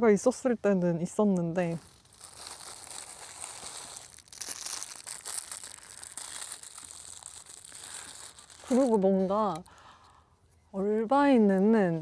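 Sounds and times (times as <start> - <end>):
food packaging crinkling: 1.6 - 10.0.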